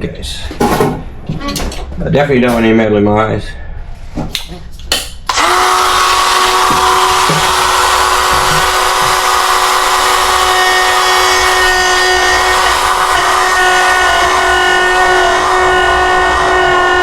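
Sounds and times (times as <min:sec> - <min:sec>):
die grinder high whine: 0:05.3 - 0:17.0.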